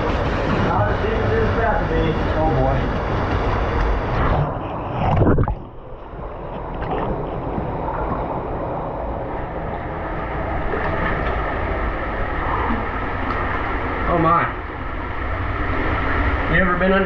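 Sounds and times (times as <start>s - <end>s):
water sloshing and splashing: 2.6s - 16.2s.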